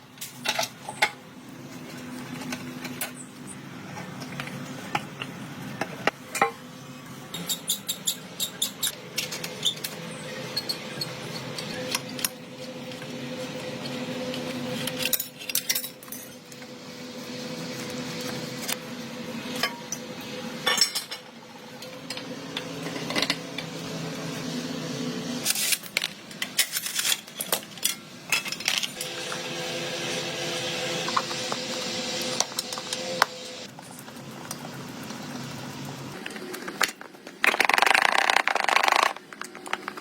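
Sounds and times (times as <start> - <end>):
steady machine hum: 9.9 - 26.5, 27.7 - 33.7.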